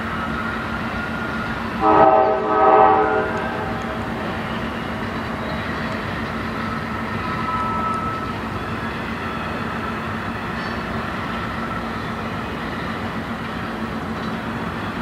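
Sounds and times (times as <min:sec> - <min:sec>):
freight train rumbling: 0:00.0 - 0:15.0
locomotive air horn: 0:01.8 - 0:03.8.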